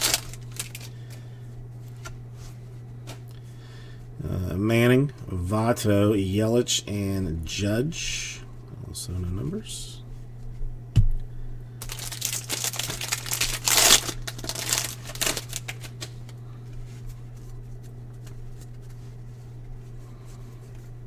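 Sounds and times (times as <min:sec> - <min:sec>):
card wrapper crinkling: 0:00.0 - 0:01.2, 0:11.8 - 0:16.4
cards tapping down: 0:00.0 - 0:01.2.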